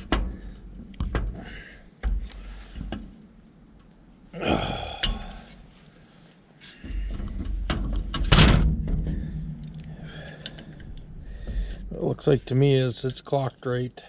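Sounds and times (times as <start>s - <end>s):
low steady hum: 0.0s - 14.0s
metal tools clunking and knocking: 6.9s - 12.0s.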